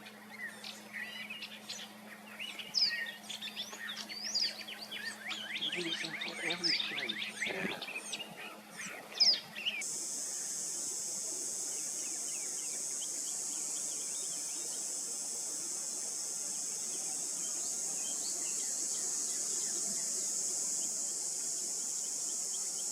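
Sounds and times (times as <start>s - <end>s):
faint bird chirps: 0.0s - 15.1s
high-pitched insect chorus: 0.0s - 22.9s
cardinal chirping: 0.5s - 9.8s.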